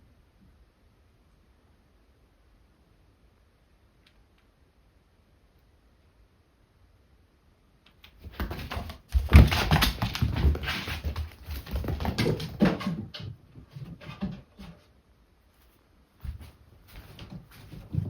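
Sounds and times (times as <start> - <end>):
cats scuffling and thumping: 7.9 - 18.0.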